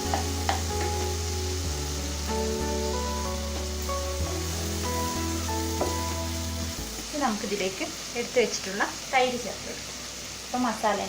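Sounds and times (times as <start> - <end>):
background music: 0.0 - 7.8
food sizzling in a pan: 0.0 - 11.0.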